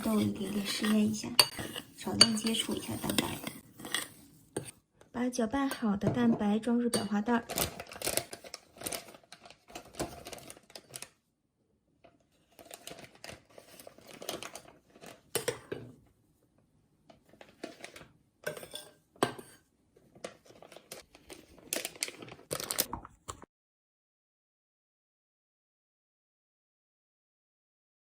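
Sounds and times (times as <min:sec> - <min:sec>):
utensils scraping against bowl: 0:00.0 - 0:04.8, 0:07.0 - 0:09.1
plastic piping bag crinkling: 0:07.3 - 0:11.2, 0:12.5 - 0:15.2, 0:20.2 - 0:23.1.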